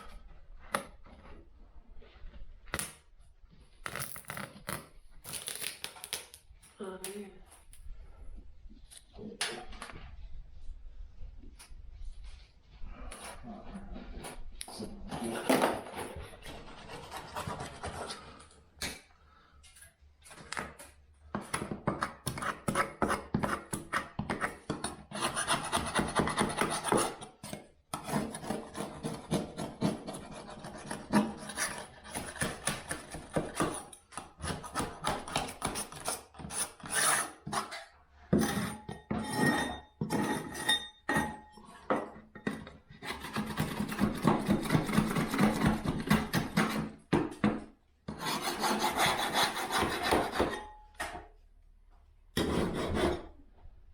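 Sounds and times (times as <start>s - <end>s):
hand tool rasping plasterboard: 15.1s - 18.4s, 21.4s - 41.4s, 42.8s - 47.0s, 48.1s - 50.8s, 52.4s - 53.4s.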